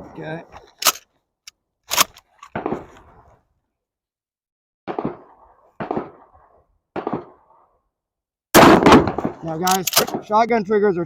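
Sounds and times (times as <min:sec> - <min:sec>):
shotgun bangs: 0:04.9 - 0:06.3, 0:08.6 - 0:10.3.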